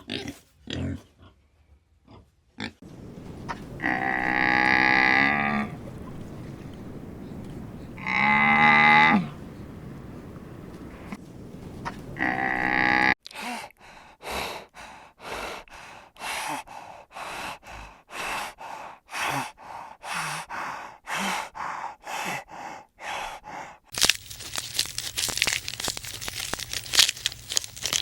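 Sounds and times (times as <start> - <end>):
animal panting heavily: 14.0 - 23.8.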